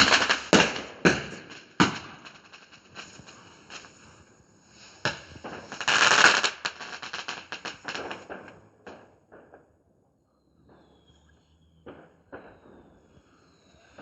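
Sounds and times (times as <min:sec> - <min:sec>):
firework bang: 0:00.0 - 0:04.2, 0:04.9 - 0:09.7, 0:11.8 - 0:14.0
fireworks crackling and popping: 0:00.0 - 0:09.9, 0:10.6 - 0:14.0.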